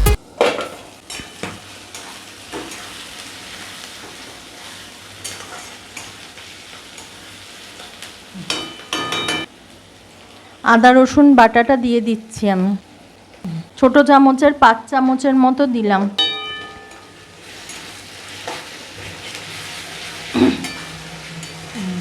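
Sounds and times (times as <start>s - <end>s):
vegetables sizzling in oil: 0.0s - 13.4s, 16.2s - 22.0s
spatula scraping and clinking: 20.3s - 21.8s.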